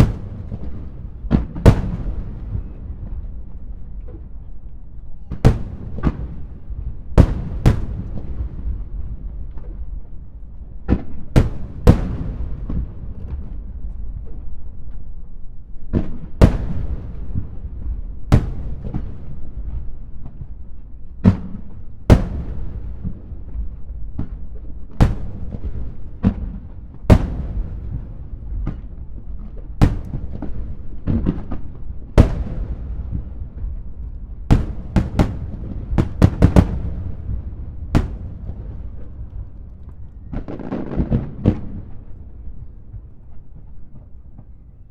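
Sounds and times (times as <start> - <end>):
firework shells bursting: 0.0 - 2.8, 5.4 - 8.8, 16.4 - 17.7, 18.3 - 19.6, 22.1 - 23.4, 25.0 - 29.0, 29.6 - 31.6, 34.5 - 39.8
continuous low rumble: 0.0 - 44.9.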